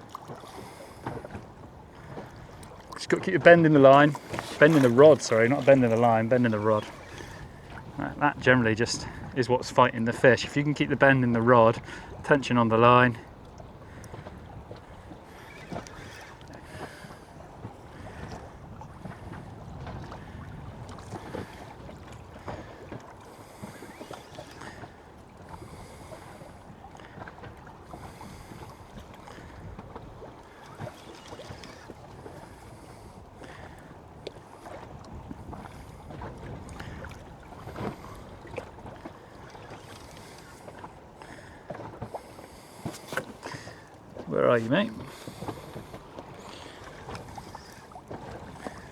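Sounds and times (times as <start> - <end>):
water slapping against boat hull: 0.0 - 48.9
wind on microphone: 0.4 - 10.6, 13.2 - 40.6.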